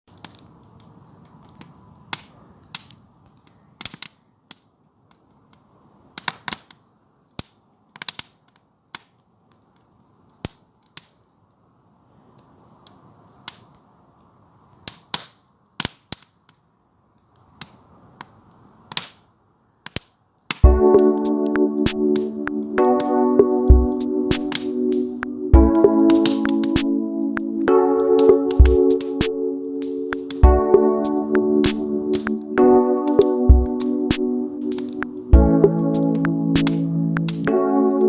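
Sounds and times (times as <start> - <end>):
firewood pops and snaps: 0.1 - 5.6, 6.2 - 9.2, 14.8 - 16.6, 18.9 - 19.2, 19.8 - 20.6
faint low hiss: 8.6 - 38.0.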